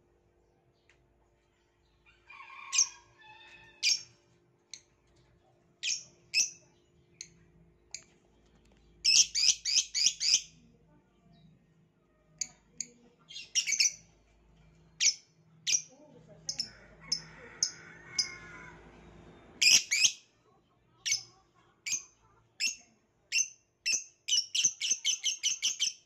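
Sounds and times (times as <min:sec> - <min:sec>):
lovebird shrill chirps: 0:19.6 - 0:20.2.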